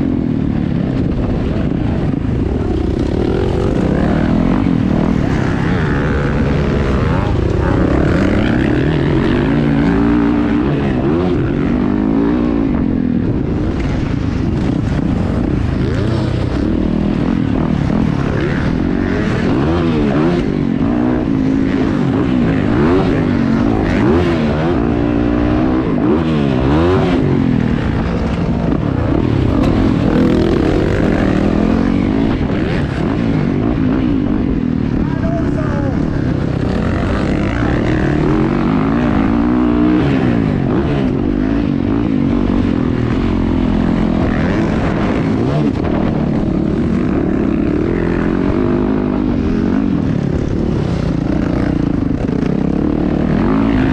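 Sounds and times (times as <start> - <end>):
motocross bike engines revving: 0.0 - 53.9.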